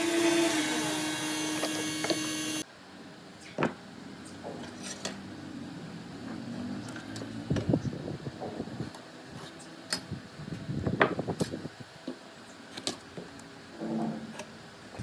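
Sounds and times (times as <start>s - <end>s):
electric power tool whining: 0.0s - 2.6s.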